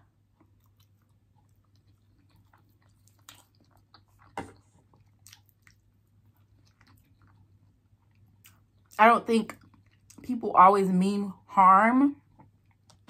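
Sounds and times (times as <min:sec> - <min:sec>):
wet chewing mouth clicks: 0:00.4 - 0:10.2.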